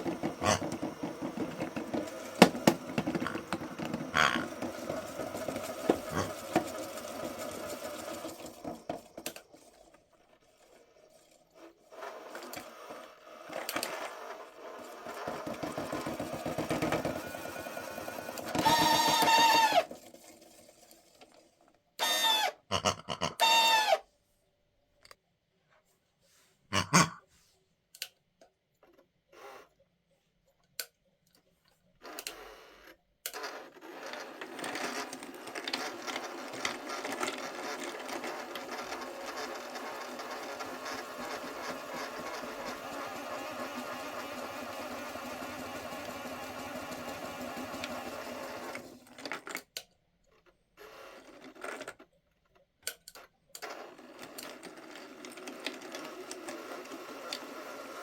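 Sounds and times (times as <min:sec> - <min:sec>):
washing machine motor whirring: 0:00.0 - 0:22.7, 0:23.4 - 0:24.0, 0:32.0 - 0:49.4, 0:53.6 - 0:58.0.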